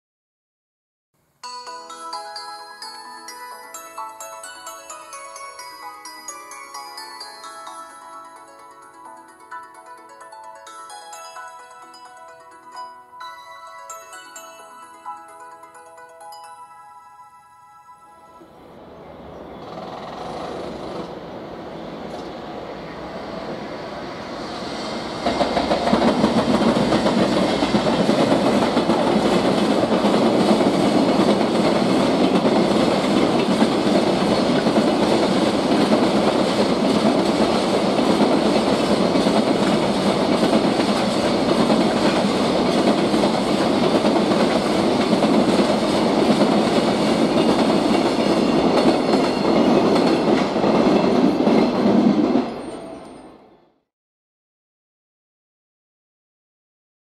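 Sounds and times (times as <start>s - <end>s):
freight train wheels rumbling: 18.6s - 53.2s.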